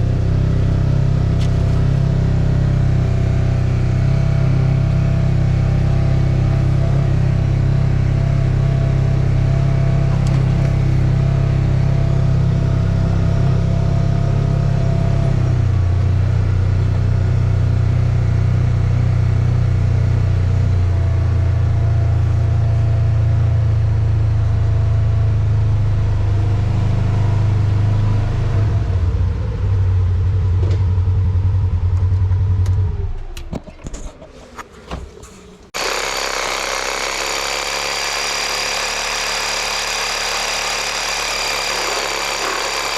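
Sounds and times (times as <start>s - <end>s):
vehicle engine and road noise: 0.0s - 36.8s
bright steady running noise: 35.8s - 42.9s.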